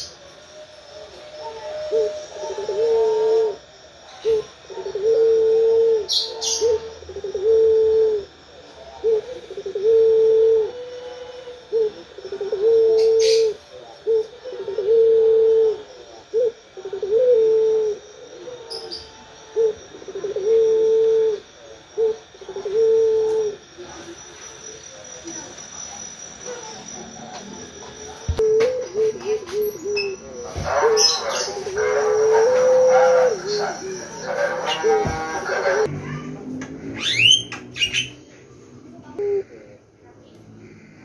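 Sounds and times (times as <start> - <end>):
dove cooing: 0.0 - 36.3, 39.0 - 39.8
high bird chirps: 36.9 - 38.3.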